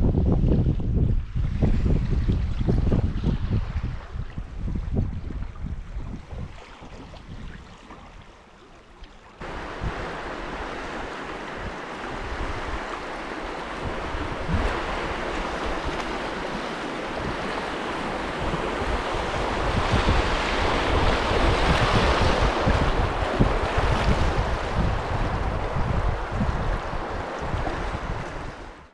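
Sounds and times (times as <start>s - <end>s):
river rapids rushing: 9.4s - 23.7s.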